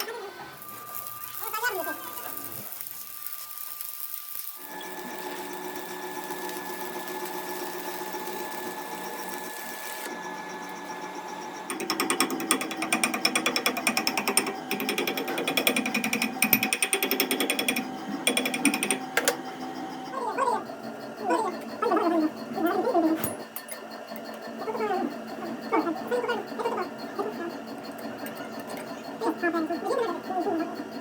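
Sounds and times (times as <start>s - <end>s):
steady machine hum: 0.0s - 31.0s
power tool hammering: 11.5s - 19.5s.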